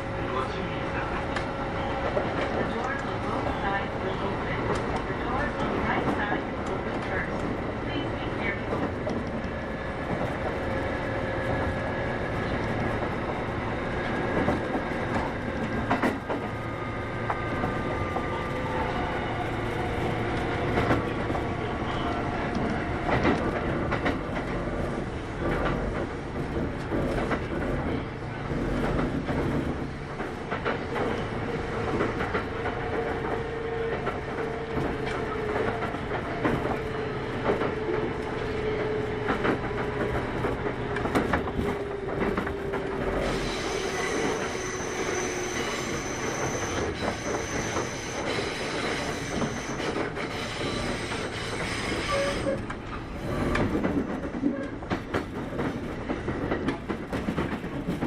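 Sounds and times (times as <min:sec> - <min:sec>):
train rolling noise: 0:00.0 - 0:58.0
wheels clicking over rail joints: 0:20.1 - 0:45.0, 0:45.6 - 0:58.0.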